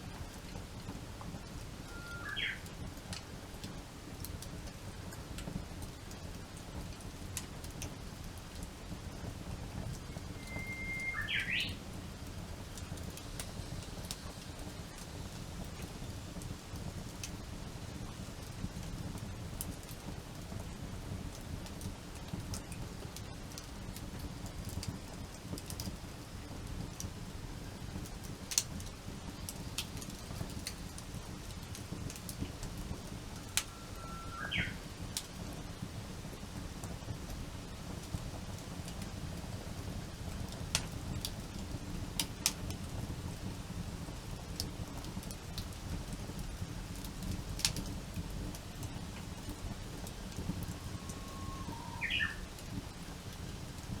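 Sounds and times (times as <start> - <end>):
campfire crackling: 0.0 - 54.0
bird whistling song: 1.8 - 2.6, 10.0 - 11.8, 33.4 - 34.8, 50.8 - 52.4.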